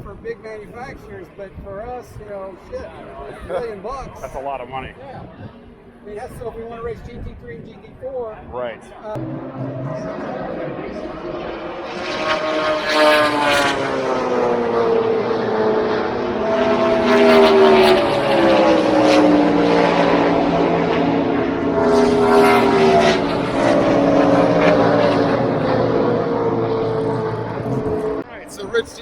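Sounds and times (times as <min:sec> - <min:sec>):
race cars passing by: 0:09.0 - 0:29.0.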